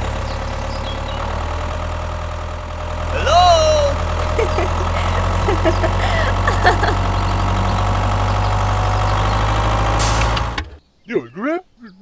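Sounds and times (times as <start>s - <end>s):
engine idling: 0.0s - 10.8s.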